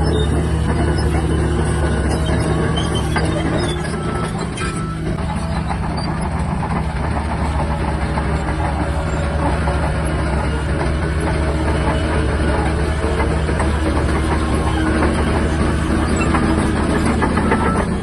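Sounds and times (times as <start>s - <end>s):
bulldozer diesel engine running: 0.0s - 18.0s
steel tracks clanking: 0.0s - 18.0s.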